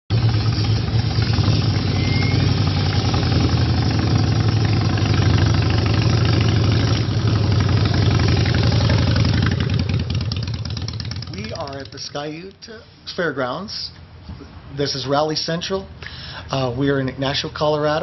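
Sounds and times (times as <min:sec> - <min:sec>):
motorcycle engine idling: 0:00.1 - 0:12.1.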